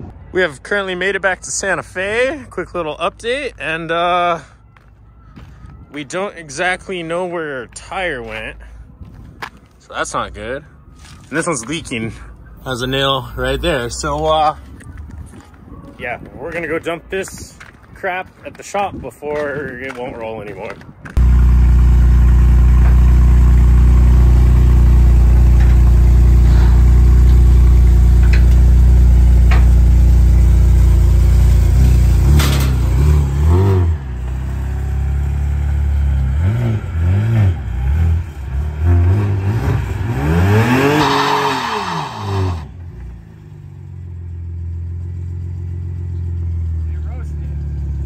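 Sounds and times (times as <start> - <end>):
car engine revving: 21.2 - 43.0.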